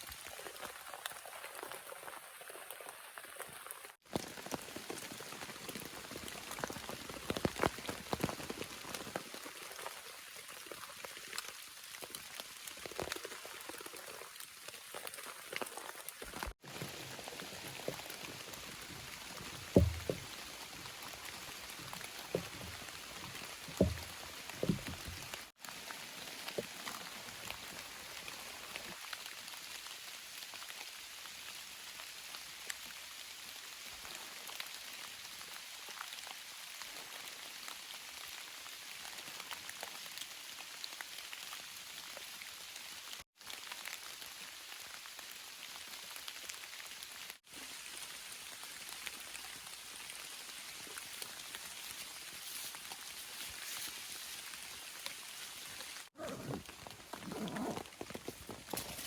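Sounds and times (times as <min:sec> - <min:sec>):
rain pattering: 0:00.1 - 0:59.0
low thumps: 0:19.7 - 0:20.3, 0:23.7 - 0:25.2.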